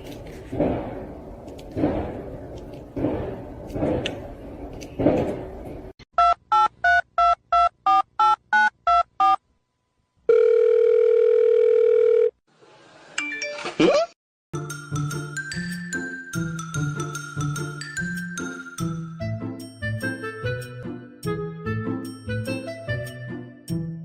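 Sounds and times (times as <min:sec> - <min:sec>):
steady telephone tone: 0:10.3 - 0:12.4.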